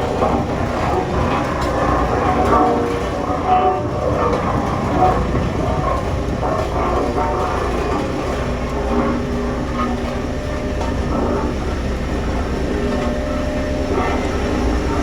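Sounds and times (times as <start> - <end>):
diesel engine rumbling under load: 0.0 - 15.0.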